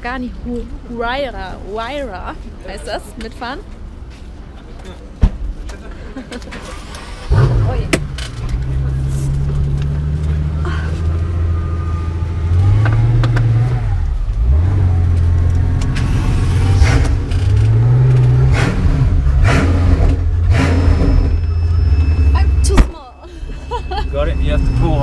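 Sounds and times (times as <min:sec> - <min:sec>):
car engine at low revs: 0:07.2 - 0:21.2.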